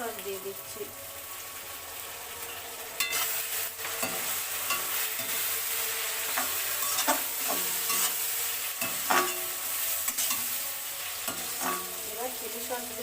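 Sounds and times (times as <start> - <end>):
food sizzling in hot oil: 0.0 - 13.0
spatula scraping a pan: 3.0 - 12.1.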